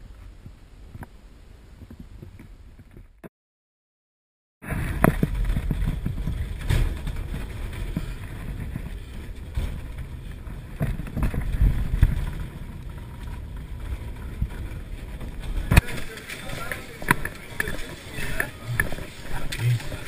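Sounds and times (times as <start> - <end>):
knocks and rattles over bumps: 4.6 - 20.0
road and engine rumble: 4.6 - 20.0.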